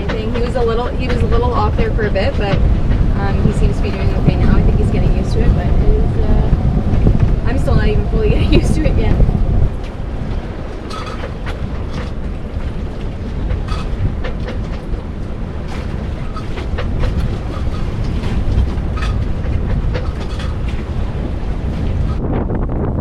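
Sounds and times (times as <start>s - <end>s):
strong wind on microphone: 0.0s - 23.0s
knocks and metallic rattles: 9.8s - 22.2s.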